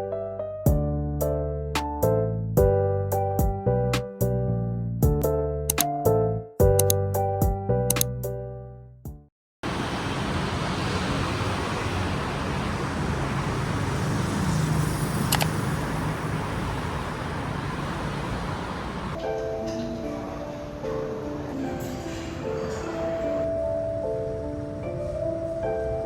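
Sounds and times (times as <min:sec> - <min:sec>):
piano-like music phrase: 0:00.0 - 0:08.5, 0:19.1 - 0:26.0
road traffic noise: 0:09.6 - 0:19.2, 0:19.8 - 0:26.0.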